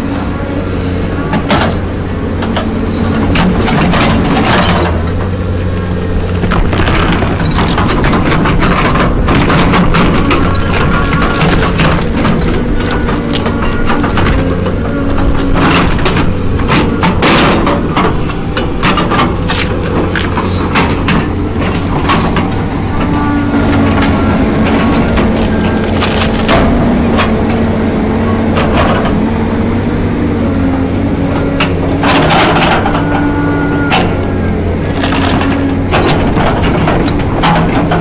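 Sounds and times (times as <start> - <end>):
heavy machine engine running: 0.0 - 38.0
wood cracking and splintering: 6.2 - 27.6, 33.9 - 38.0.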